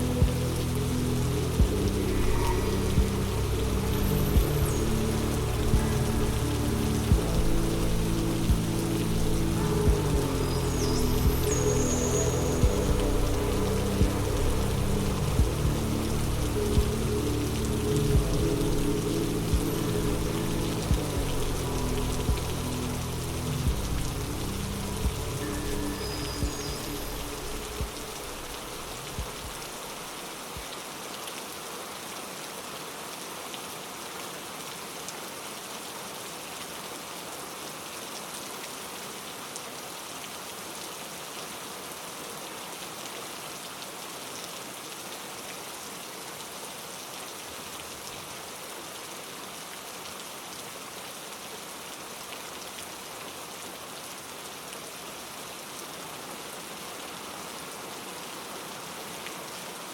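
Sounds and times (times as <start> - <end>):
low rumble: 0.0 - 30.0
steady rain falling: 0.0 - 59.9.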